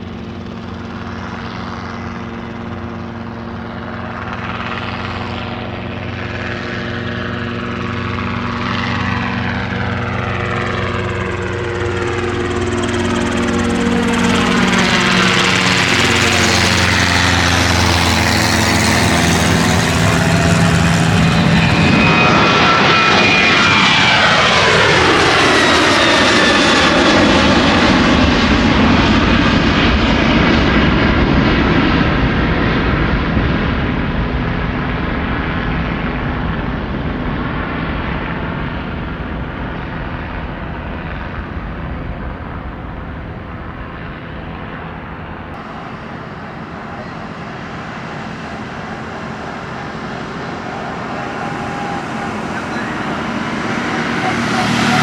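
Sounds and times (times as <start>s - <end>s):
airplane engines passing by: 0.0s - 55.0s.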